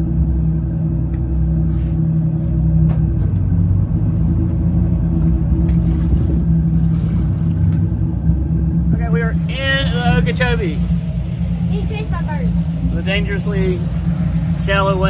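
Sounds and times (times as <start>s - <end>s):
boat engines rumbling: 0.0s - 15.0s.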